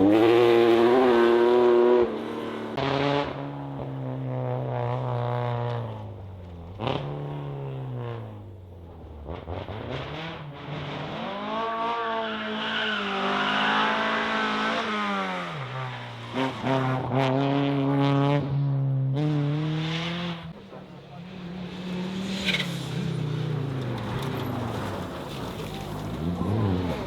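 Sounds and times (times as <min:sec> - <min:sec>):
rally car engines revving: 0:00.0 - 0:27.0.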